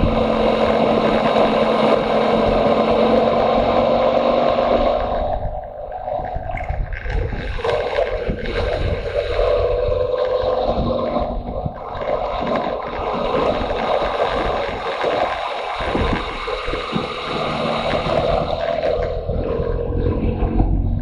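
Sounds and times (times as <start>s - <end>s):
motorcycle engine running: 0.0s - 15.2s
wind buffeting microphone: 0.0s - 21.0s.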